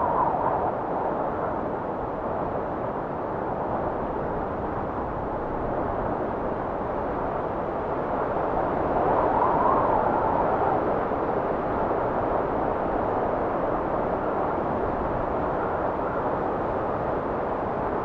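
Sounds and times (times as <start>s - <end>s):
blizzard wind blowing: 0.0s - 18.0s.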